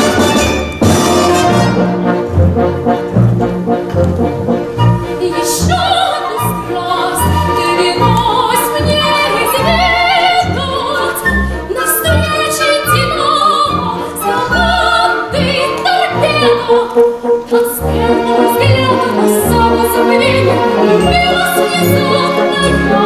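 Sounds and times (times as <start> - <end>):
orchestral backing music: 0.0 - 23.0
woman singing operatically: 5.2 - 23.0.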